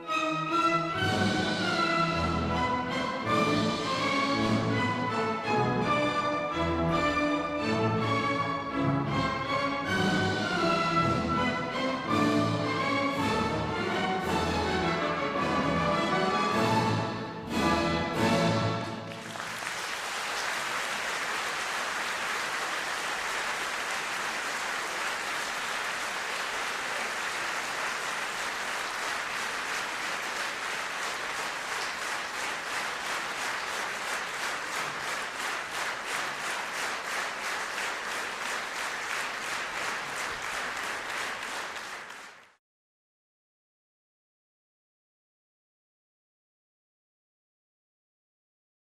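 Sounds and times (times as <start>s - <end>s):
orchestral chords: 0.0s - 19.2s
audience applauding: 19.0s - 42.6s.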